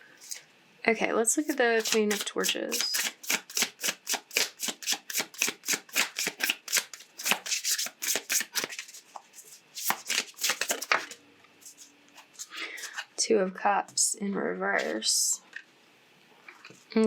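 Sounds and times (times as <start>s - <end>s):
cards being shuffled: 1.4s - 13.0s.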